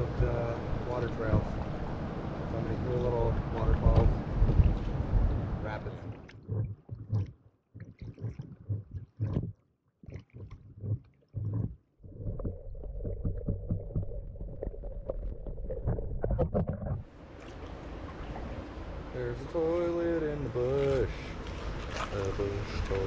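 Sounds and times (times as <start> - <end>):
rush of moving water: 0.0 - 6.3, 17.1 - 23.0
low rumbles and knocks: 1.0 - 9.6, 10.2 - 17.1
small water splashes: 2.8 - 11.8, 17.0 - 19.1, 20.5 - 23.0.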